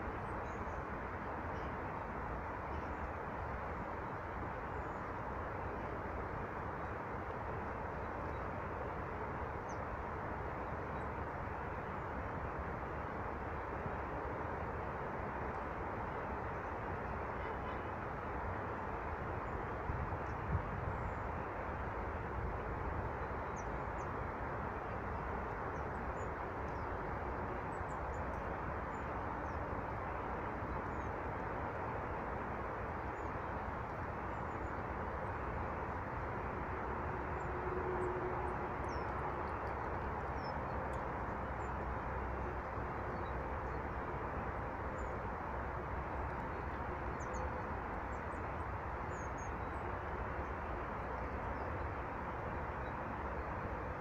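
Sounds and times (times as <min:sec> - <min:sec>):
small birds chirping: 0:38.8 - 0:39.6.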